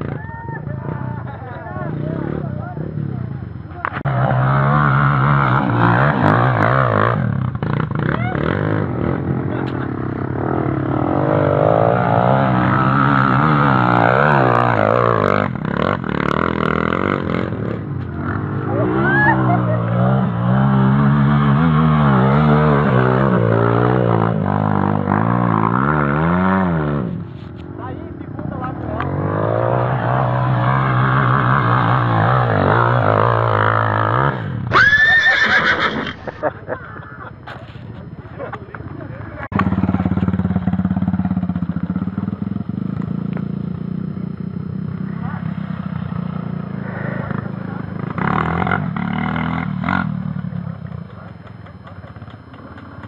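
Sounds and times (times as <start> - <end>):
motorcycle engine revving: 0.0 - 53.0
high-pitched wavering cry: 18.6 - 20.2.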